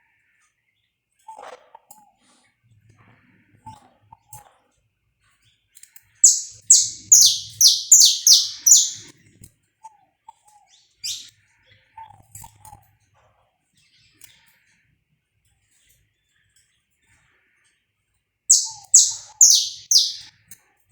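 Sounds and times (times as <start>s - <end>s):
faint lower chirps: 6.2s - 9.0s, 11.0s - 11.3s, 18.5s - 20.3s
finch singing sharp notes: 6.2s - 9.0s, 11.0s - 11.3s, 18.5s - 20.3s.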